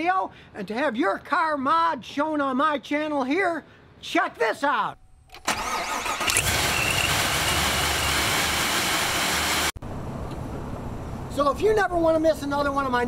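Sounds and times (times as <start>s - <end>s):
supercharged engine whining: 5.5s - 10.8s.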